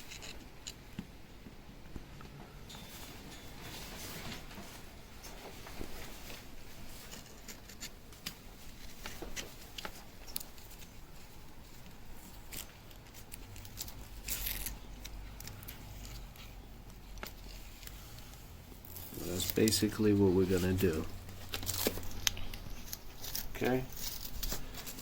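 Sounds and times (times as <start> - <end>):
small scrapes and clicks: 0.0 - 1.1, 5.8 - 11.1, 11.8 - 19.9, 20.7 - 25.0
tape rasping: 0.0 - 25.0.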